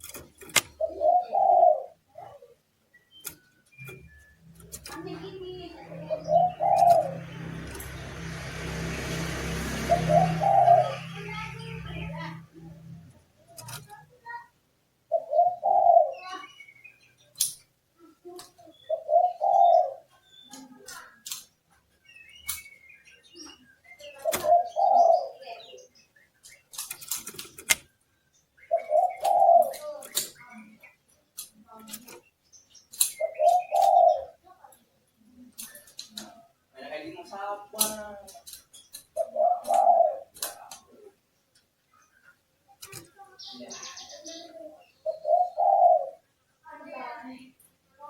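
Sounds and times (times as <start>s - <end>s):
low cooing bird calls: 0.0s - 14.1s, 15.1s - 17.4s, 18.1s - 27.8s, 28.6s - 31.1s, 31.7s - 36.6s, 37.8s - 41.2s, 42.0s - 46.4s
low cooing call: 0.8s - 2.6s, 5.2s - 7.4s, 9.6s - 12.9s, 15.1s - 16.3s, 18.9s - 20.1s, 39.2s - 40.4s, 43.9s - 46.2s.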